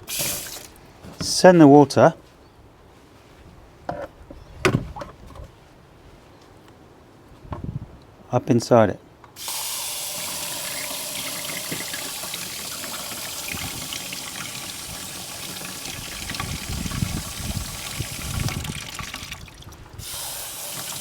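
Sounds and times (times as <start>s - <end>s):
water splashing on plastic: 0.0s - 0.8s, 9.4s - 21.0s
water spray hissing: 0.0s - 0.8s, 9.4s - 19.4s, 20.0s - 21.0s.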